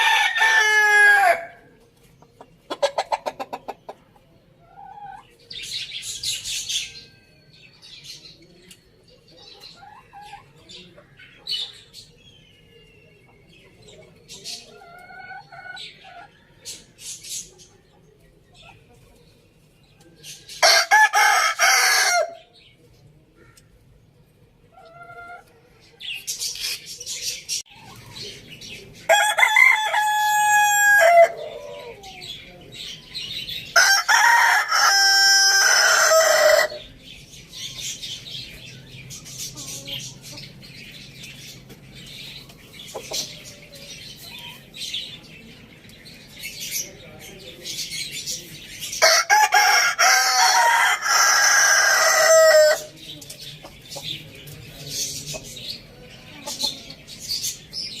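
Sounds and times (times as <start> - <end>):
rooster crowing: 0.0 - 1.6, 20.6 - 22.4, 29.1 - 32.0, 33.8 - 36.8, 49.0 - 52.9
hens clucking: 0.0 - 5.5, 13.7 - 19.4, 24.5 - 37.0, 37.6 - 44.8, 48.8 - 58.0.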